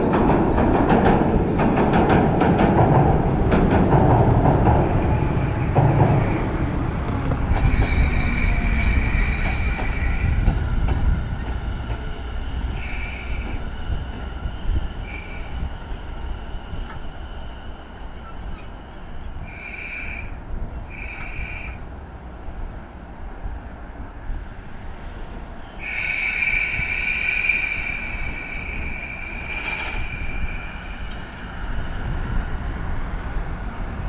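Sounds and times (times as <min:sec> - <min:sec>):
train rumbling on track: 0:00.0 - 0:34.0
wheel squeal: 0:03.2 - 0:21.9, 0:25.7 - 0:33.6.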